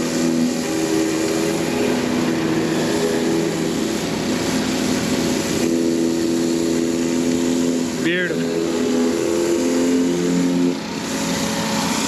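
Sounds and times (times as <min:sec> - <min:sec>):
pressure washer engine hum: 0:00.0 - 0:12.0
water spraying onto concrete: 0:00.0 - 0:12.0.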